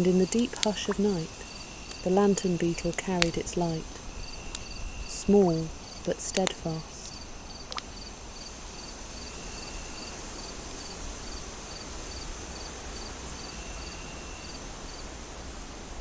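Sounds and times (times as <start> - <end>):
forest ambience hiss: 0.0 - 8.1
crickets chirping: 0.2 - 8.1.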